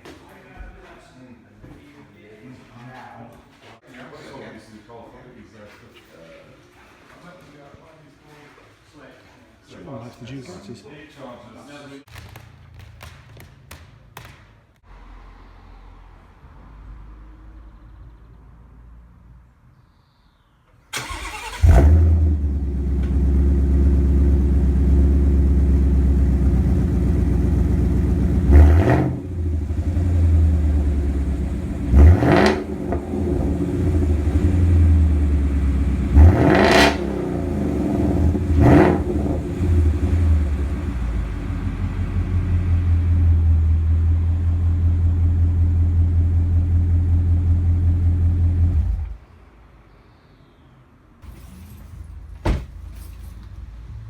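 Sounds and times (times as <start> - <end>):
car engine starting and idling: 20.9 - 49.2
engine throttle blips: 21.0 - 49.2.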